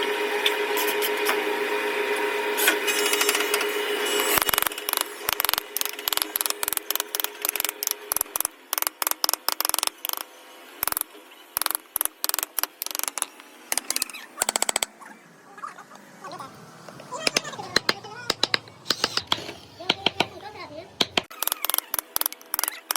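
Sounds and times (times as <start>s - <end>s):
mallet tapping chisel into wood: 17.2s - 20.4s, 21.0s - 21.4s.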